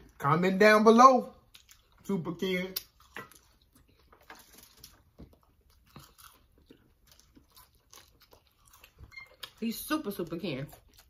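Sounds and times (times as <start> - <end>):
quiet chewing with soft crunches: 1.4 - 11.0.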